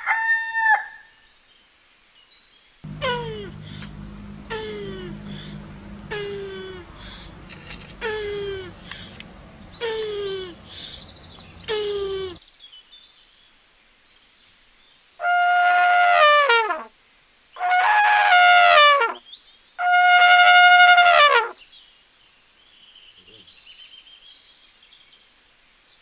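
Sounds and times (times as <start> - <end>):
elephant trumpeting: 2.9 - 12.4
short falling cry: 2.9 - 12.4.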